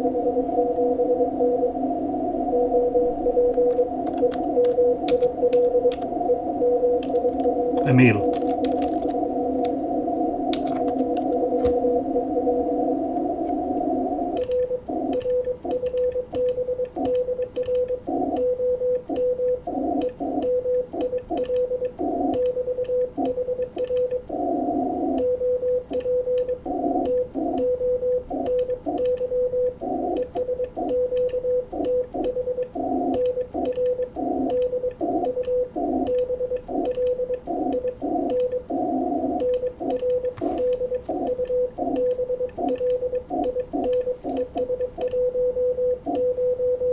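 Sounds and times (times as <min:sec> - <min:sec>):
receiver hiss: 0:00.0 - 0:15.1.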